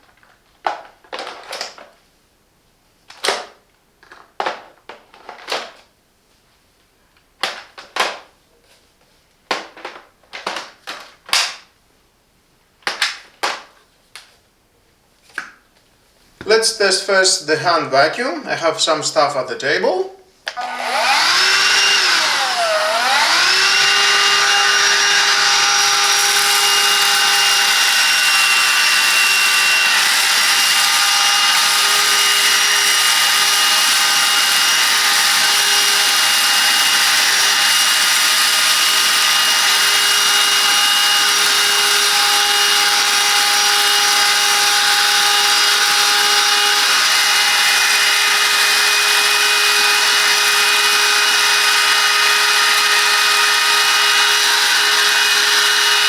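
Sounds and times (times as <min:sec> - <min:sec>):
handheld vacuum cleaner running: 0:20.5 - 0:56.0.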